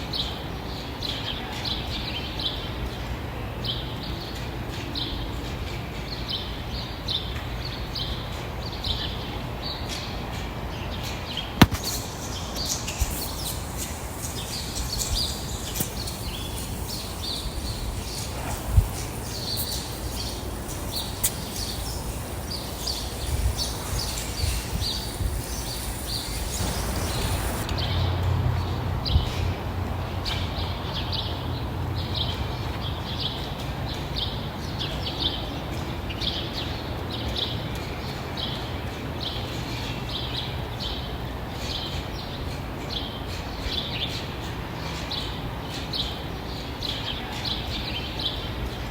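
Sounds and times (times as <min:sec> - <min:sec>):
birds chirping: 0:11.4 - 0:28.0
sharp clicks: 0:11.6 - 0:27.8.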